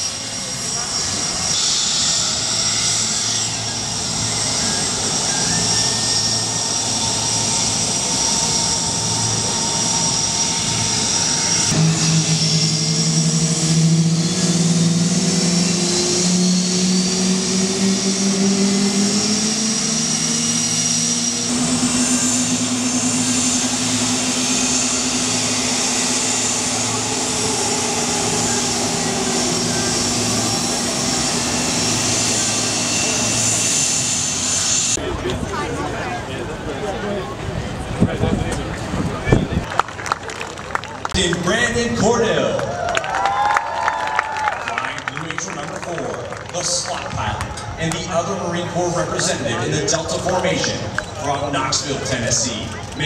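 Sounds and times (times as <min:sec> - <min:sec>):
aircraft engines whining: 0:00.0 - 0:53.0
low engine drone rising in pitch: 0:00.0 - 0:53.0.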